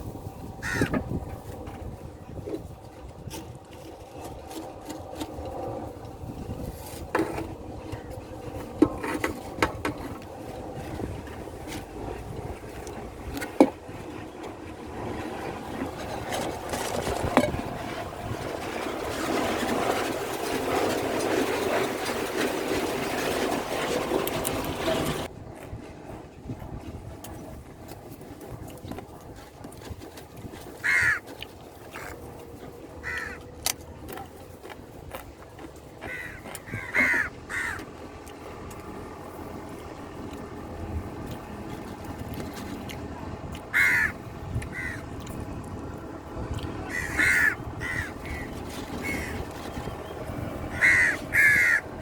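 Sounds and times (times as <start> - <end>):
crows cawing: 0.6 - 1.0, 30.8 - 31.3, 33.0 - 33.5, 36.0 - 37.9, 43.7 - 45.2, 46.8 - 49.5, 50.7 - 52.0.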